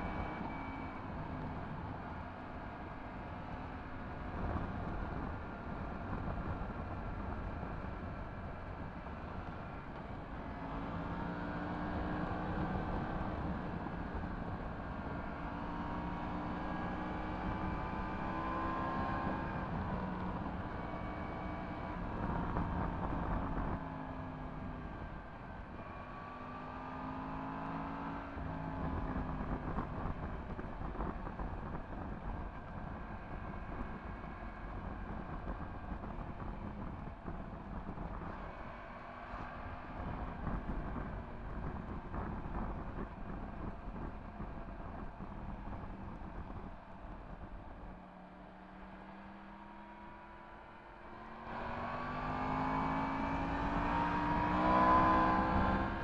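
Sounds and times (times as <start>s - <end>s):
wind and road rumble: 0.0s - 56.0s
motorcycle engine revving: 51.2s - 56.0s.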